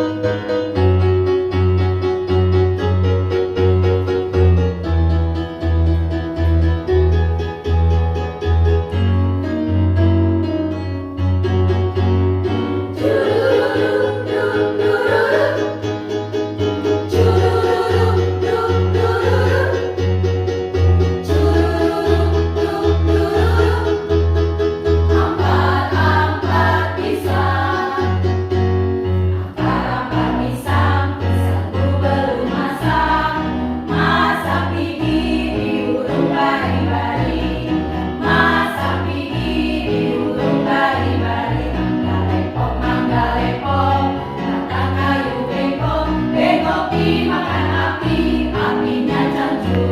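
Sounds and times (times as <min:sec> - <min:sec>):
choir singing: 0:12.9 - 0:16.0, 0:17.0 - 0:20.2, 0:21.2 - 0:28.4, 0:29.4 - 0:49.9.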